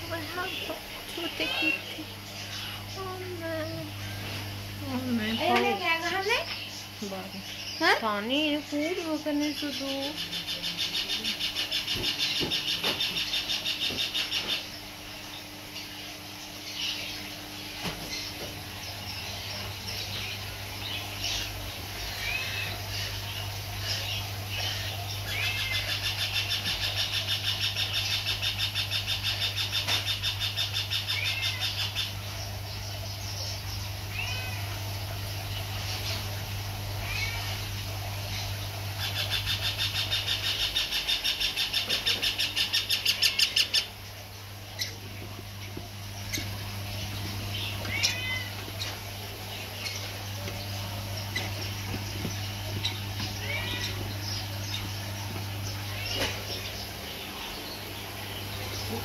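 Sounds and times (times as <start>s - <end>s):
birds chirping: 0.0s - 59.0s
steady low hum: 0.0s - 59.0s
low hum: 43.8s - 59.0s.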